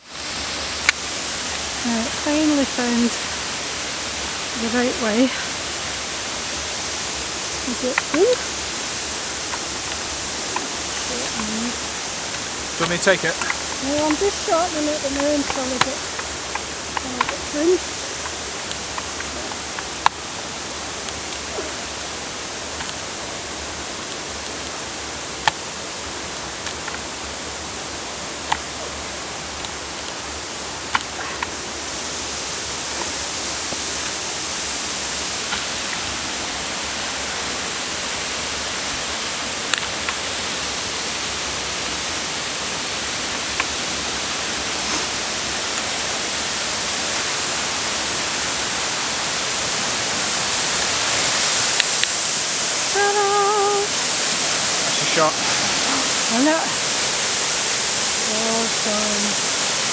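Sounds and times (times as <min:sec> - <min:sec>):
waterfall rushing: 0:00.0 - 0:59.9
sharp clicks: 0:39.7 - 0:40.2.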